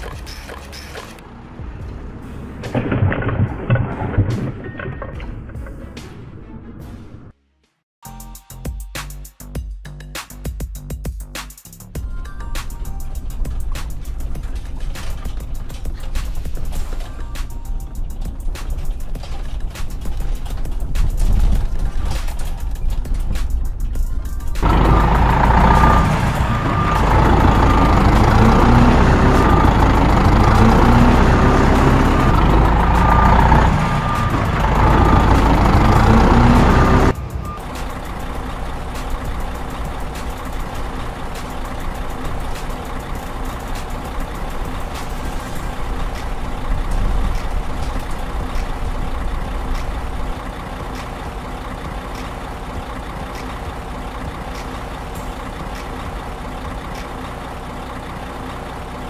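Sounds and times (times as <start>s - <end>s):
diesel engine idling: 0.0s - 4.2s, 11.9s - 59.0s
heavy trucks running: 0.0s - 7.3s, 11.8s - 59.0s
reversing beeper: 24.6s - 39.7s.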